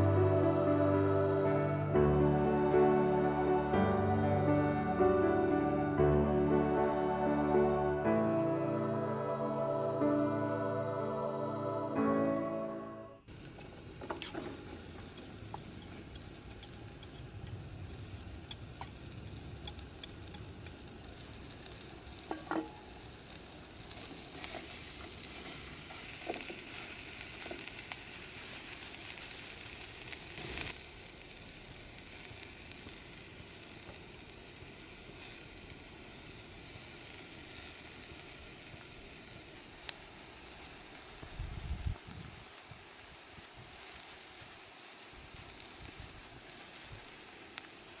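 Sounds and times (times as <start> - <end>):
food sizzling in a pan: 13.3 - 48.0.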